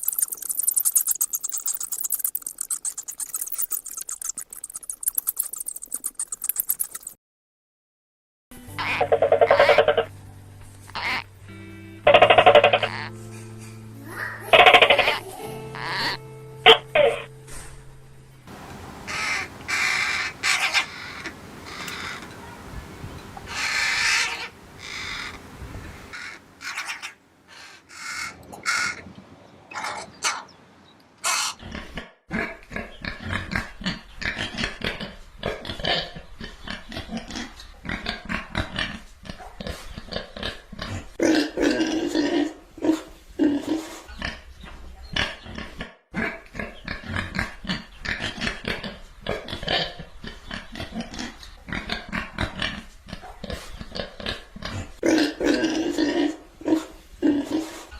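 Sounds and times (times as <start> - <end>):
pigs grunting: 31.5 - 44.4, 45.1 - 57.9.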